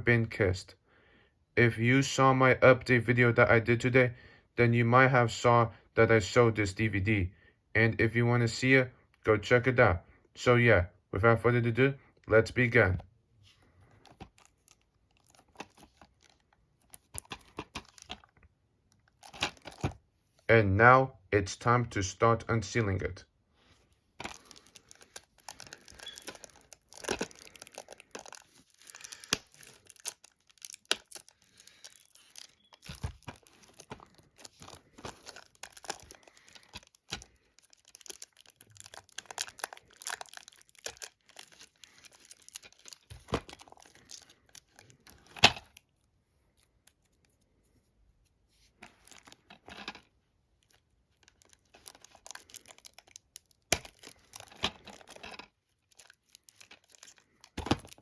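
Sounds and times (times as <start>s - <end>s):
plastic wrap crinkling and tearing: 14.0s - 18.3s, 24.2s - 45.8s, 48.8s - 49.5s, 50.6s - 58.0s.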